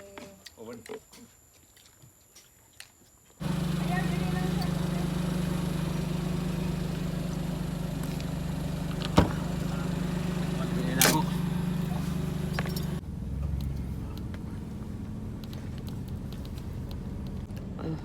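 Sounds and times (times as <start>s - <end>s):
car engine drone in cabin: 3.4s - 18.0s
quieter rumble: 3.4s - 18.0s
sharp clicks: 10.9s - 11.5s.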